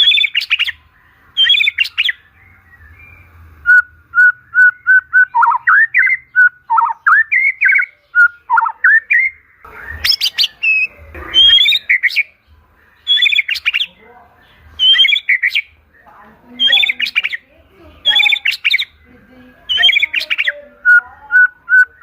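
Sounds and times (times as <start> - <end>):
bird whistling song: 0.0 - 22.0
harsh scratchy bird phrases: 5.3 - 12.4, 13.0 - 22.0.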